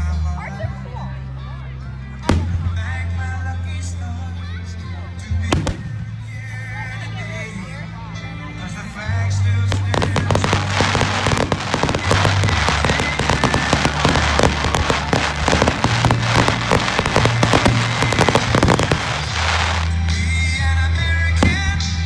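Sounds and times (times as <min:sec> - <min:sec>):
music with low bass: 0:00.0 - 0:22.0
fireworks bursting and crackling: 0:02.2 - 0:03.0, 0:05.5 - 0:06.1, 0:09.6 - 0:20.7, 0:21.4 - 0:22.0.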